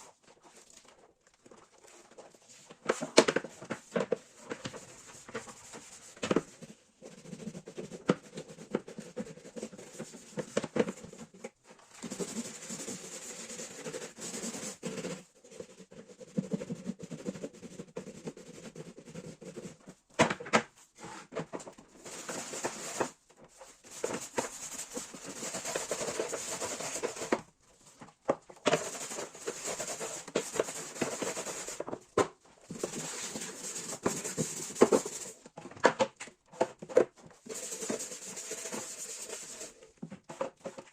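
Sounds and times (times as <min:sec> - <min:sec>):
objects being wiped: 0:21.0 - 0:27.9, 0:28.7 - 0:31.8, 0:32.6 - 0:35.4, 0:37.4 - 0:39.8.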